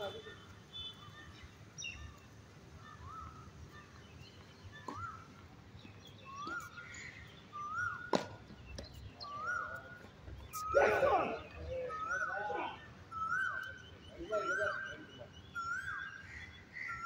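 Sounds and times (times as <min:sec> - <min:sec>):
bird whistling: 0:06.2 - 0:08.1, 0:09.2 - 0:16.3
tennis balls hit with racquets: 0:08.0 - 0:09.0.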